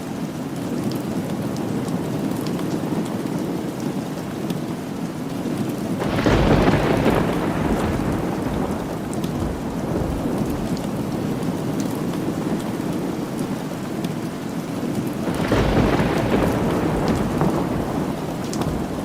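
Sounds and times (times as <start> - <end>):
steady rain: 0.0 - 19.0
thunder rumbling: 6.0 - 14.0, 15.2 - 19.0.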